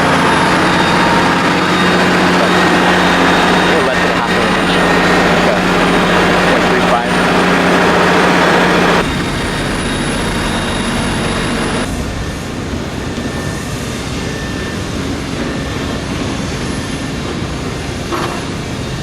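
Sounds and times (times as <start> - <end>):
vehicle rumble: 0.0 - 15.5.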